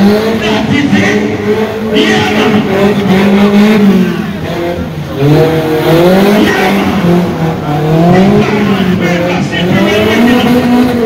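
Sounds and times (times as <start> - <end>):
car engine revving hard: 0.0 - 11.0.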